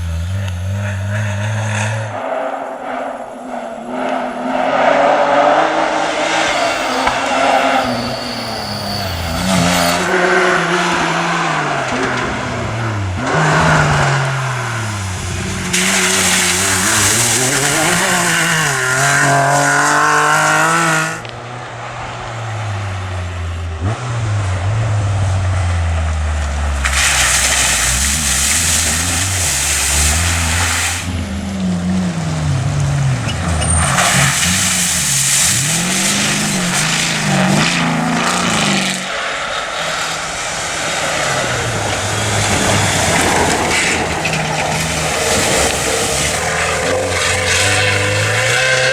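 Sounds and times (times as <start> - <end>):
vehicle engines running hard: 0.0 - 48.9
vehicles rushing past: 0.0 - 48.9.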